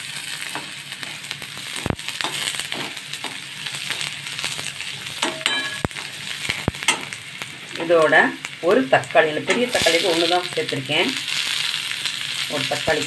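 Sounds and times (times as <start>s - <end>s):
onions sizzling in hot oil: 0.0s - 13.0s
steel spatula scraping and knocking pan: 5.2s - 6.1s.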